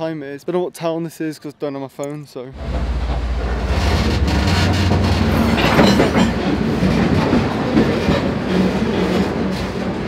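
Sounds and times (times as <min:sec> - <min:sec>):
rail car rattling: 0:02.6 - 0:10.0
steel wheels on rails: 0:02.6 - 0:10.0.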